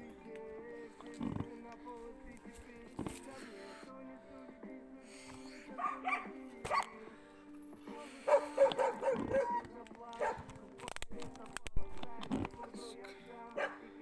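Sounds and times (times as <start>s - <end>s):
dog barking: 5.7s - 7.0s, 8.2s - 10.5s, 13.5s - 13.9s.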